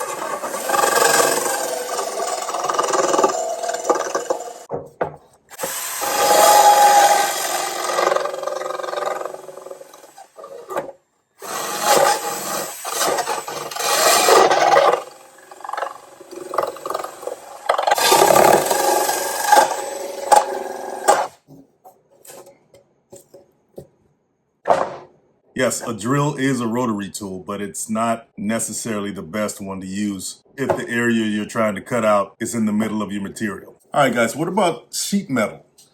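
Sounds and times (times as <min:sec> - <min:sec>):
circular saw blade cutting wood: 0:00.0 - 0:04.7, 0:05.5 - 0:21.4.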